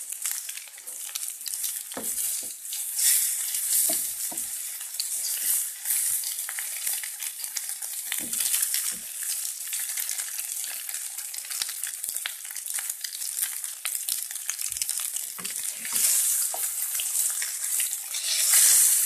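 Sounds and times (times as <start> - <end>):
egg sizzling in frying pan: 0.0 - 19.0
spatula scraping pan: 1.7 - 7.0, 15.4 - 19.0
spatula knocking on pan: 1.9 - 2.6, 3.8 - 4.6, 8.2 - 9.1, 15.4 - 16.8.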